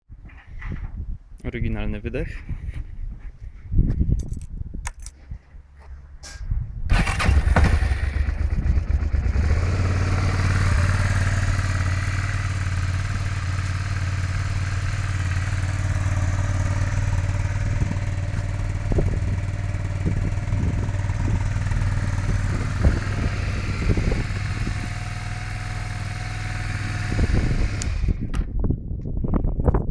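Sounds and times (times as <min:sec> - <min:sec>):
motorcycle engine idling: 0:06.9 - 0:28.3.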